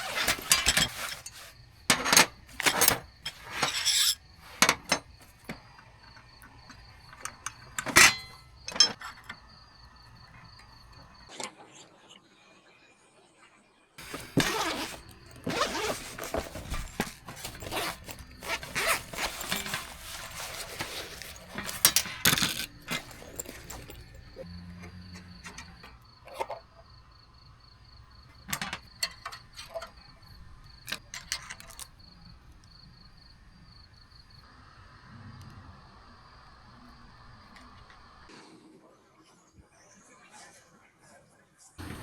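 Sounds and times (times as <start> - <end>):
gear rustling and scraping: 0.0 - 11.3, 14.0 - 34.4.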